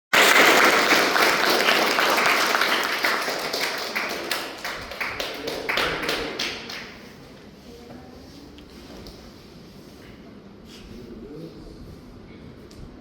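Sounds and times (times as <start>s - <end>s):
audience applauding: 0.1s - 7.1s.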